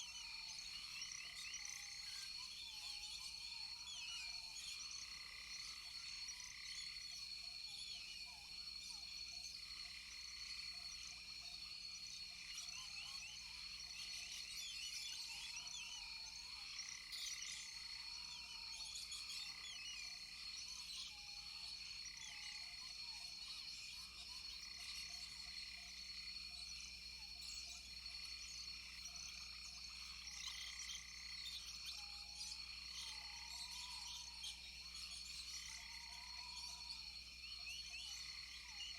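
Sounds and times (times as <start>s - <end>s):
insects chirping: 0.0s - 38.9s
frogs calling: 27.1s - 38.9s.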